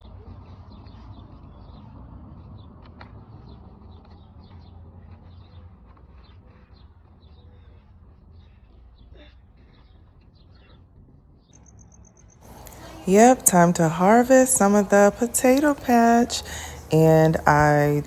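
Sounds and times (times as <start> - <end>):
small birds chirping: 3.4 - 10.8.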